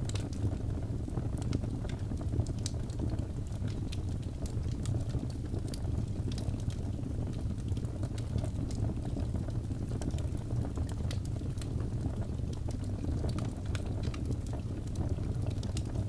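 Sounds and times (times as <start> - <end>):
fireplace fire crackling: 0.0 - 16.0.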